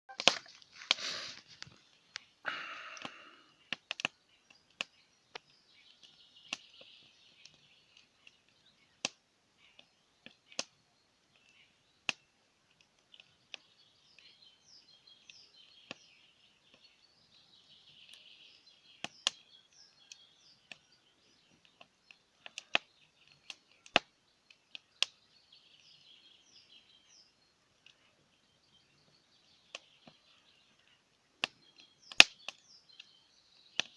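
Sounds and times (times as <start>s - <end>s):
campfire crackling: 0.1s - 33.9s
fire popping: 0.1s - 33.9s
short hissing rushes: 0.9s - 1.4s
faint bird chirps: 1.0s - 33.9s.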